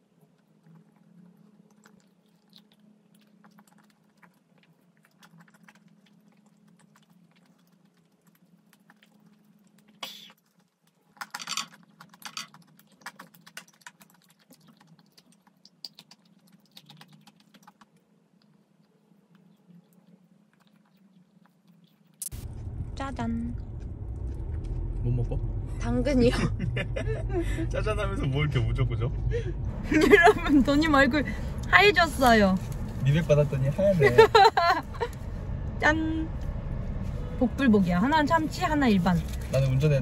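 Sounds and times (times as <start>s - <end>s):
mouth chewing soft dessert: 0.0s - 25.6s, 31.5s - 34.2s.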